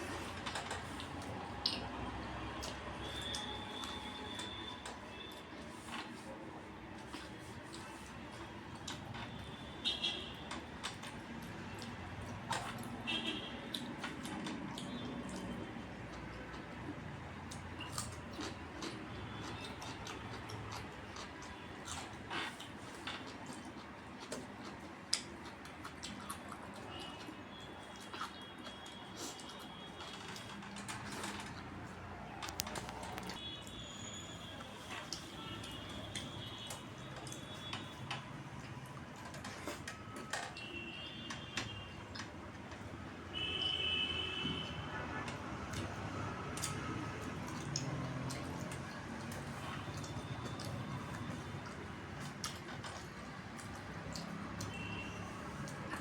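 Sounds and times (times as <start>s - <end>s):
wet mouth clicks while chewing: 0.1s - 4.7s, 13.7s - 33.4s, 45.7s - 56.0s.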